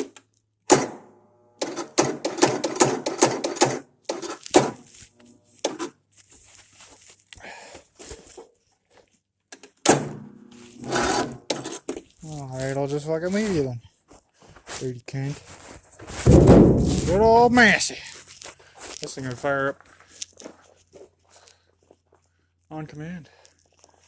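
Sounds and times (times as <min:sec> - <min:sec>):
sharp knocks: 0:00.7 - 0:04.8, 0:16.2 - 0:17.2.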